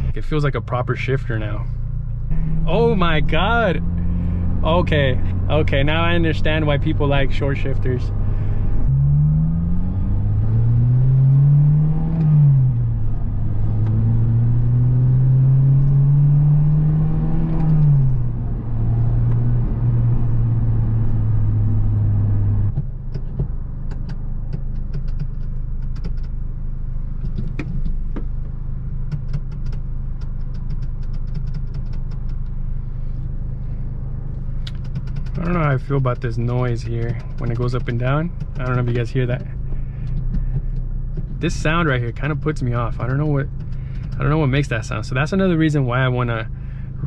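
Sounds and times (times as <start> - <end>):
car engine accelerating: 0.0 - 47.0
sharp clicks and rattles: 22.7 - 26.4, 27.2 - 32.6, 34.3 - 47.0.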